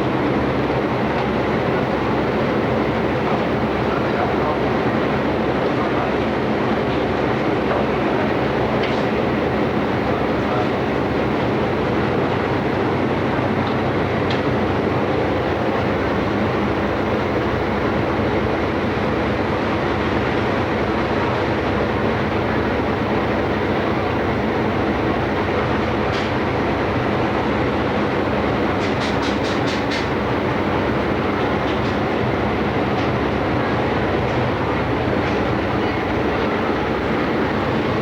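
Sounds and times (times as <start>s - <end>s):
ship engine drone: 0.0s - 38.0s
rushing noise: 20.6s - 38.0s.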